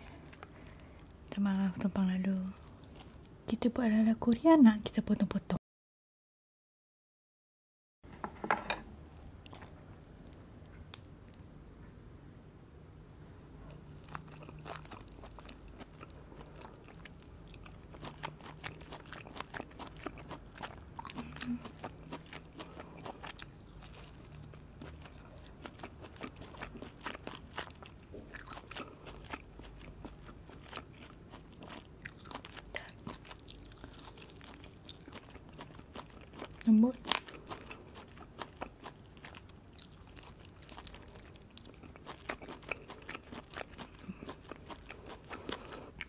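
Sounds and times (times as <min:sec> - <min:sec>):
chewing with wet mouth clicks: 0:13.9 - 0:46.0.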